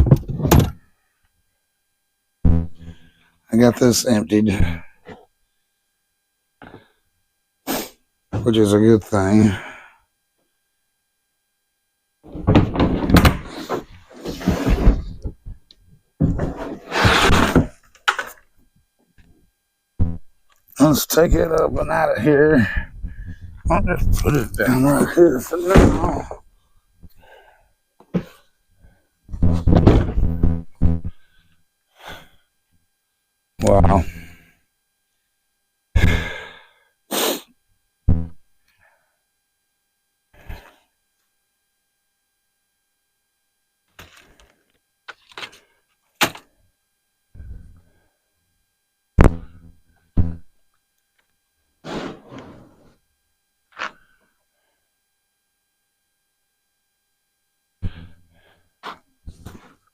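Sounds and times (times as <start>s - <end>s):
man sighing and breathing out: 9.5s - 10.0s, 36.0s - 36.8s.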